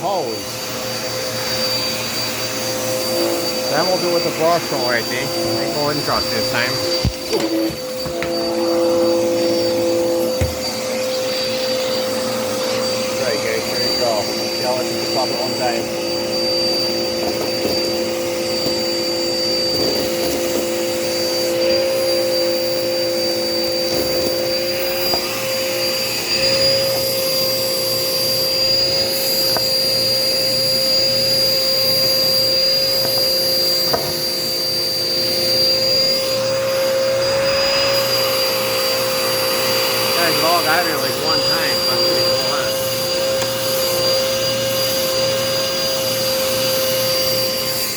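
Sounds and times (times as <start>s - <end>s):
vacuum cleaner whining: 0.0s - 47.9s.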